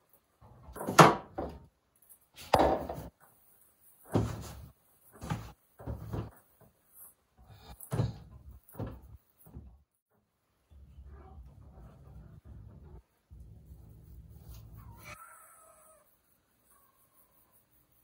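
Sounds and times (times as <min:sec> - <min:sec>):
knocks and thuds of kitchen items: 0:00.6 - 0:01.7, 0:02.4 - 0:03.2, 0:04.0 - 0:06.8, 0:07.6 - 0:09.8.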